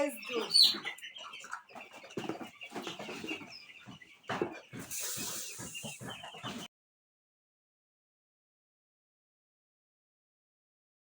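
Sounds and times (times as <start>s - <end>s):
chicks chirping and clucking: 0.0s - 6.7s
rustling and knocks: 1.8s - 6.7s.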